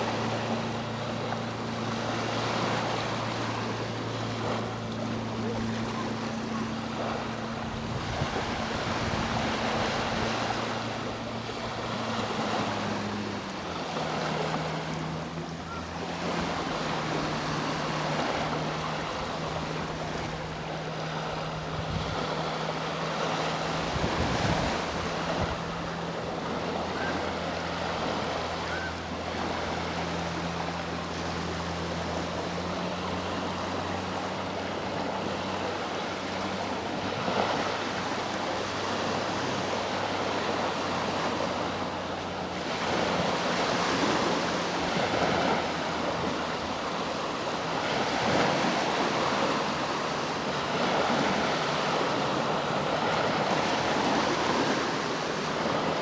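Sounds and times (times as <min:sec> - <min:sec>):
boat engine droning: 0:00.0 - 0:56.0
sea waves washing onto shore: 0:00.0 - 0:56.0.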